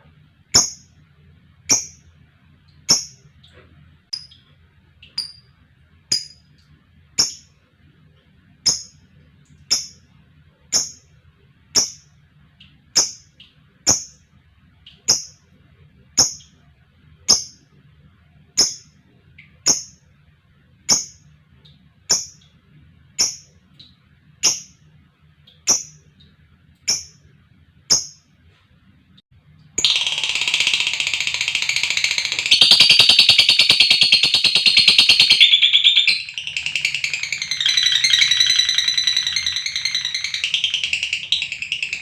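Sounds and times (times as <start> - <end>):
lovebird high-pitched calls: 0.6 - 0.9, 1.7 - 2.0, 2.9 - 3.2, 7.2 - 7.5, 8.6 - 9.0, 9.7 - 10.0, 10.7 - 11.0, 11.8 - 12.1, 13.0 - 14.2, 14.9 - 15.4, 16.2 - 16.5, 17.3 - 17.6, 18.6 - 18.9, 19.6 - 20.0, 20.9 - 21.2, 22.1 - 22.4, 23.2 - 23.5, 24.4 - 24.8, 25.7 - 26.1, 26.9 - 27.2, 29.8 - 42.0.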